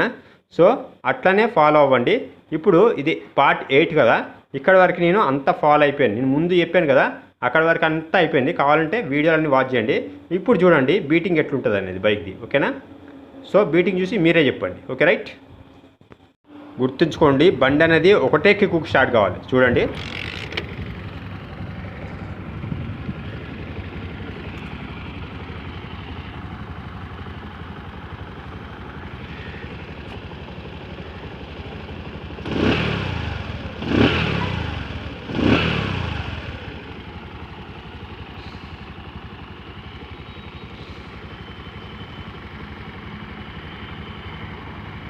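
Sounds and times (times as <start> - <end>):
motorcycle engine idling: 17.3 - 45.0
motorcycle engine revving: 17.4 - 44.8.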